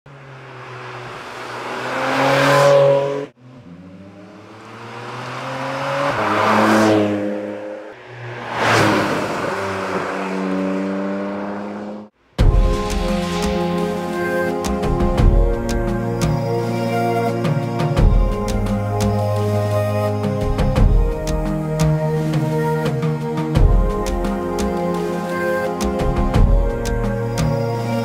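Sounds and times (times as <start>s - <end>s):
music: 12.4s - 28.0s.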